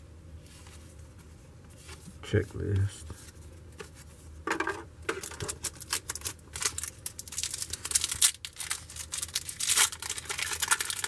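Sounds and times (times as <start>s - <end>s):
wax paper wrapper crinkling: 5.2s - 11.0s.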